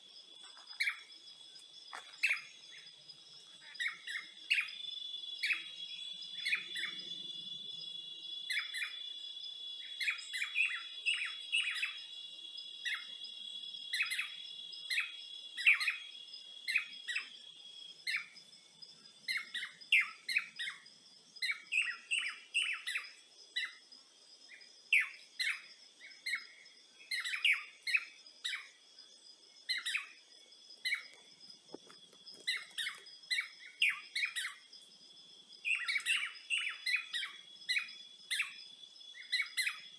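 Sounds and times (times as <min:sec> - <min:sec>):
birds chirping: 0:00.0 - 0:07.5, 0:24.5 - 0:34.7, 0:35.6 - 0:39.9
insect drone: 0:00.0 - 0:39.9.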